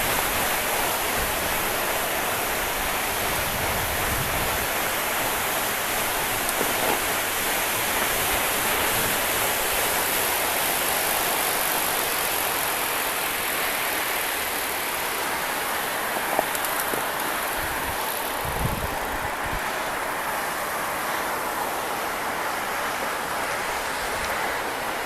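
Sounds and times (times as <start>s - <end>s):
wind on microphone: 3.2s - 4.9s, 17.6s - 19.7s.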